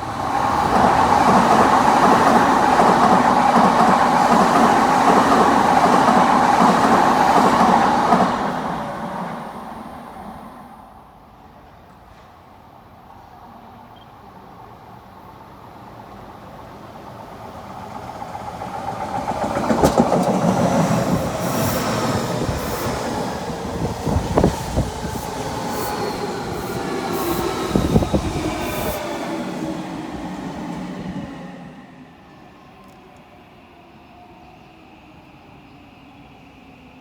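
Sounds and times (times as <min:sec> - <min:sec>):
electric train rumbling past: 0:00.0 - 0:13.8, 0:14.5 - 0:37.0
wheel clacks over rail joints: 0:19.5 - 0:21.4.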